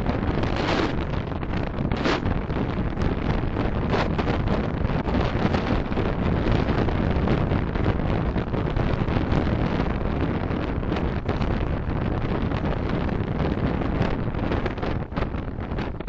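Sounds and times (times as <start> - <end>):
road noise: 0.0 - 11.8
wind noise: 0.0 - 16.0.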